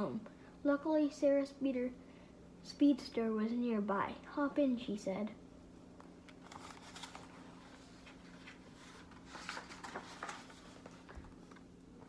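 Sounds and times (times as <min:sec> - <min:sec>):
steady low hum: 0:00.0 - 0:12.0
paper rustling and tapping: 0:06.0 - 0:07.3, 0:08.0 - 0:11.7.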